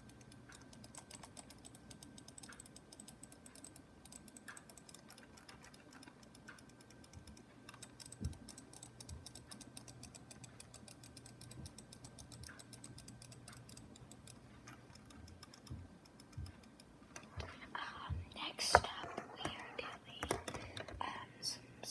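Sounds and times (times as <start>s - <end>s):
rapid mouse or keyboard clicks: 0.0s - 17.6s
soft low thumps: 17.3s - 18.4s.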